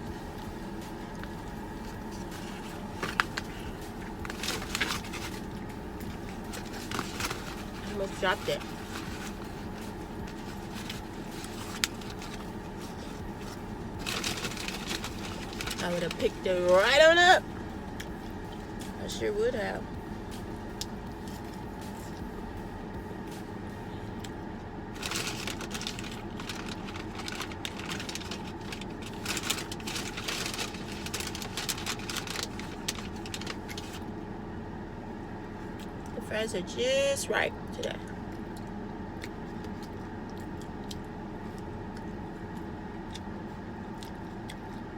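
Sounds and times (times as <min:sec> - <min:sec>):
car engine idling: 0:00.0 - 0:44.9
food packaging crinkling: 0:01.2 - 0:16.4, 0:25.0 - 0:34.1
chewing food: 0:38.0 - 0:44.9.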